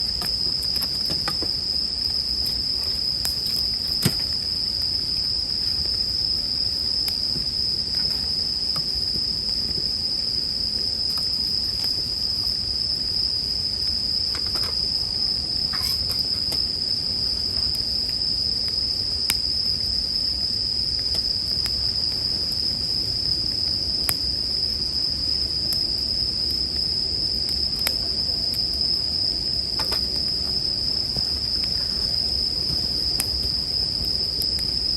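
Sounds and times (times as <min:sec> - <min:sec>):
campfire crackling and popping: 0:00.0 - 0:34.9
crickets chirping chorus: 0:00.0 - 0:34.9.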